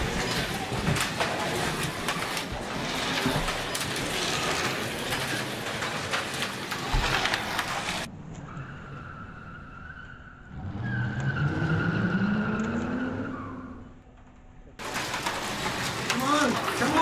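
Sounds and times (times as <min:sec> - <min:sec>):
slot car motors whining: 0:00.0 - 0:08.1.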